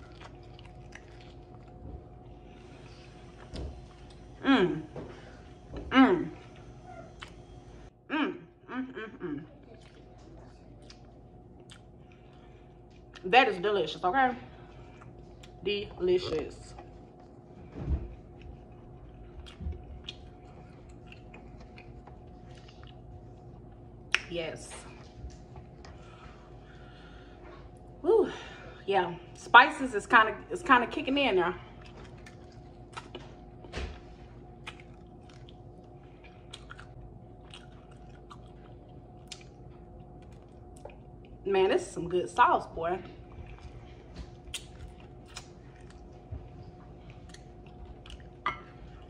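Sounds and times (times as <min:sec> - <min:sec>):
person chewing: 0:00.0 - 0:04.4, 0:09.5 - 0:13.2, 0:18.1 - 0:24.2, 0:31.8 - 0:33.6, 0:34.5 - 0:41.3, 0:43.3 - 0:49.0
faint steady hum: 0:00.0 - 0:49.0.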